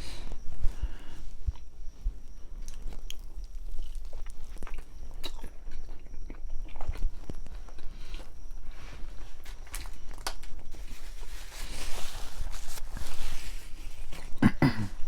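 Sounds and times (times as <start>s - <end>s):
person chewing sandwich: 2.5s - 8.4s.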